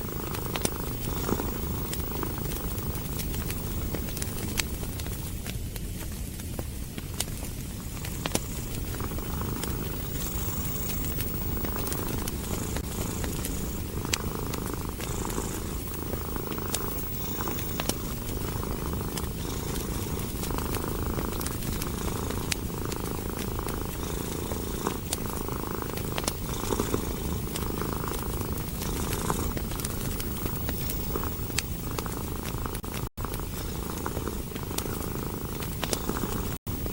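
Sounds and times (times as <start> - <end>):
cat purring: 0.0 - 36.9
wood fire crackling: 0.0 - 36.9.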